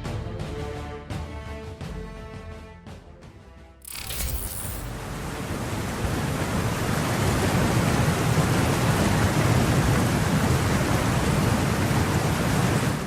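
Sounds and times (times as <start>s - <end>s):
wind: 3.9s - 13.0s
heavy rain: 4.9s - 13.0s.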